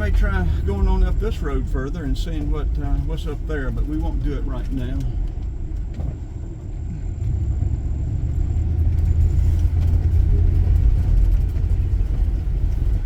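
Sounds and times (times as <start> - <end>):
faint clicks and rattles: 0.0 - 7.7
van engine and road rumble: 0.0 - 13.0.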